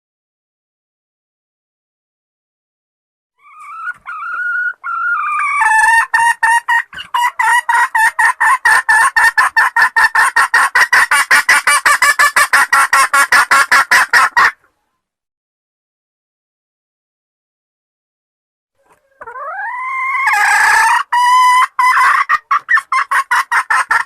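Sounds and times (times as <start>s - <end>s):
junglefowl clucking calls: 3.4s - 14.8s, 18.8s - 24.0s.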